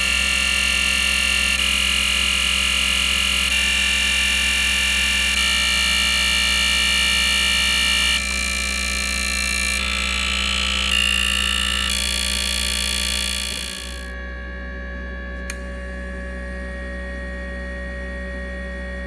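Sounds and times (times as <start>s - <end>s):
fuel injectors buzzing: 0.0s - 14.2s.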